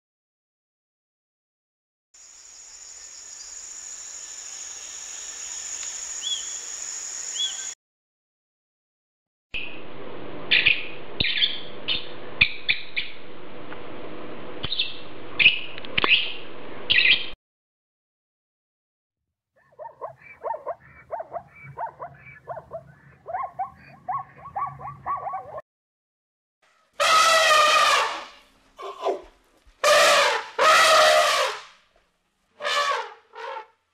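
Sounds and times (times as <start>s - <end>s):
macaws squawking: 19.8s - 25.6s
elephant trumpeting: 27.0s - 29.2s, 29.8s - 31.6s.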